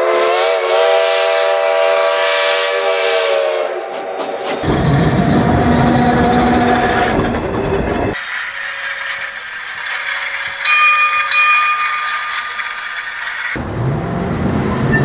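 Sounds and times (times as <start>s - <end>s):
train rumbling on rails: 0.0s - 15.0s
thin high rail sound: 4.2s - 14.1s.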